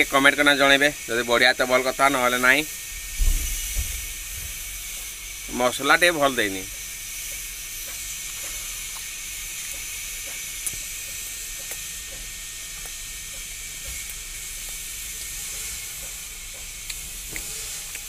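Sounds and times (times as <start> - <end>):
steady high hiss: 0.0 - 18.0
man chewing: 3.5 - 5.5, 6.7 - 18.0.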